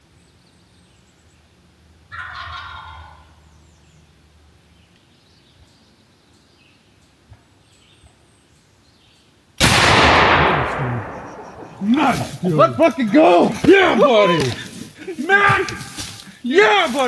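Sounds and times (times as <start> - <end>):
turkey gobbling: 2.1 - 3.4
loud shotgun blast: 9.6 - 14.6.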